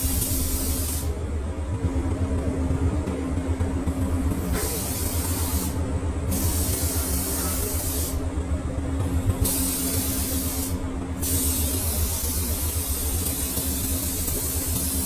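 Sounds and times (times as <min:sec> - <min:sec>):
spray gun hissing: 0:00.0 - 0:01.1, 0:04.5 - 0:08.2, 0:09.4 - 0:15.0
low machine hum: 0:00.0 - 0:15.0.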